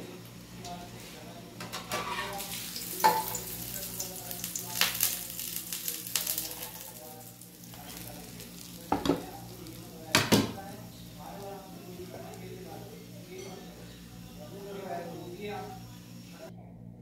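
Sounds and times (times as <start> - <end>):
burger patty sizzling in a pan: 0.0 - 16.2
spatula scraping a pan: 1.7 - 3.4.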